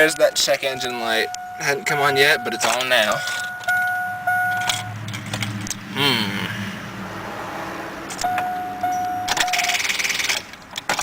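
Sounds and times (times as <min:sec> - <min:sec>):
dashboard warning chime: 0:00.0 - 0:05.0, 0:08.2 - 0:10.0.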